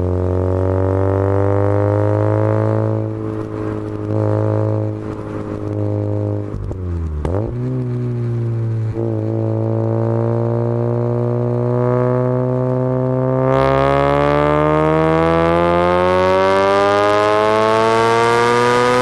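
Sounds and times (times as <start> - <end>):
rotary engine droning: 0.0 - 19.0.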